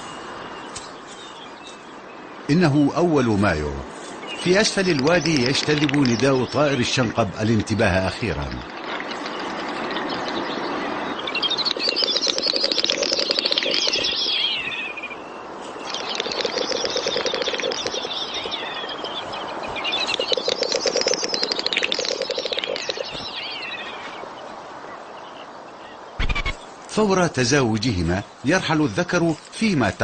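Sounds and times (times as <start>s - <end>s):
snipe drumming tremolo: 11.6s - 14.3s, 15.9s - 18.8s, 20.0s - 23.1s.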